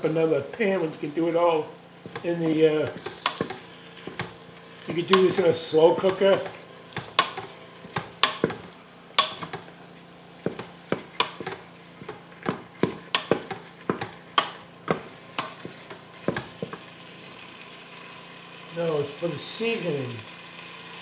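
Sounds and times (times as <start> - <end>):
spoon knocking against pot: 3.0 - 4.4.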